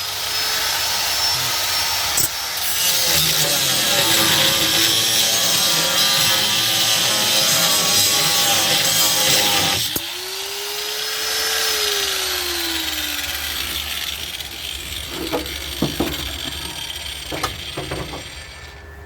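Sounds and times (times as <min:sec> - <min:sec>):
power tool winding down: 0:00.0 - 0:19.0
metal knocks and taps: 0:15.1 - 0:16.6, 0:17.3 - 0:18.3.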